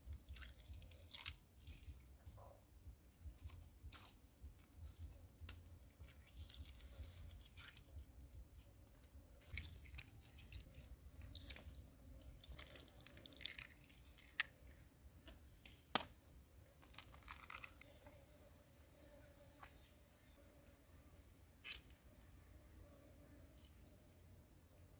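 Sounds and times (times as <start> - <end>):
person chewing and eating: 0.1 - 2.2, 9.3 - 14.9.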